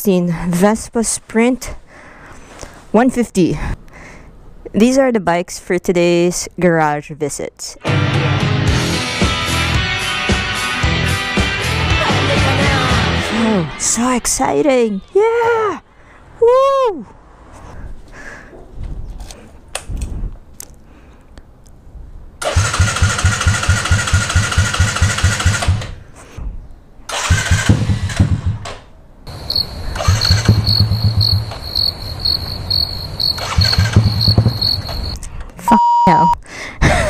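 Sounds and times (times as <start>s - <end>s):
motorcycle engine cranking: 22.4s - 26.0s, 27.1s - 32.0s, 33.2s - 35.2s
motorcycle engine revving: 22.4s - 26.0s, 27.2s - 28.6s, 29.3s - 35.2s
high beep: 30.2s - 36.4s.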